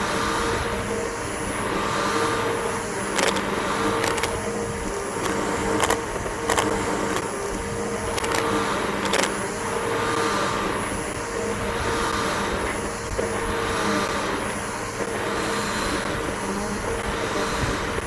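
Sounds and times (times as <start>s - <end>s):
sharp clicks: 3.1s - 9.5s.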